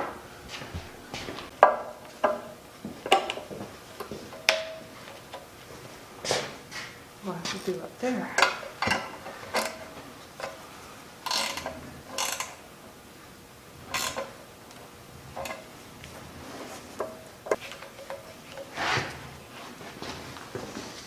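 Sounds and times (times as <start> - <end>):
metallic clicks and rattles: 13.9 - 14.8.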